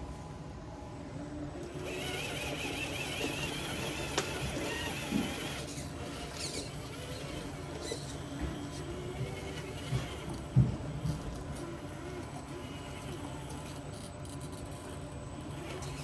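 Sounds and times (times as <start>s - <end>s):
electric motor whining: 1.6s - 13.8s.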